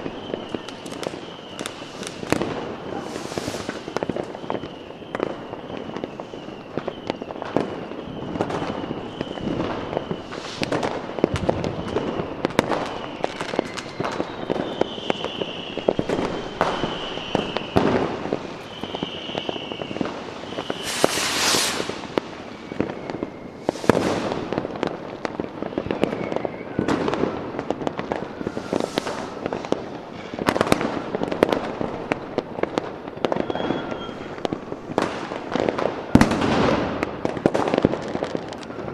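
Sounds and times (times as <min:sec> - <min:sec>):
fireworks bangs and crackling: 0:00.0 - 0:38.9
high firework whistles: 0:00.0 - 0:38.9
loud hissing burst: 0:02.9 - 0:04.0, 0:10.2 - 0:11.0, 0:20.4 - 0:22.7, 0:23.6 - 0:24.4, 0:28.4 - 0:29.7.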